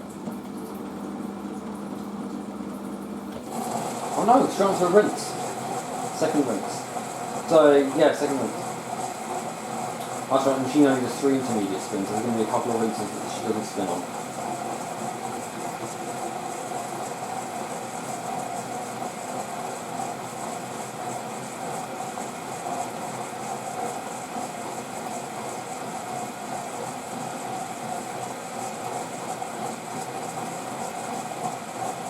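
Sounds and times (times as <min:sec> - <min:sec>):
water rushing into washing machine: 0:00.0 - 0:32.0.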